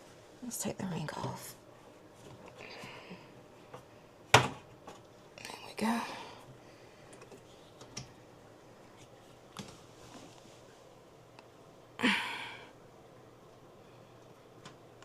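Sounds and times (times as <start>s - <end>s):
person breathing out: 12.0s - 12.7s.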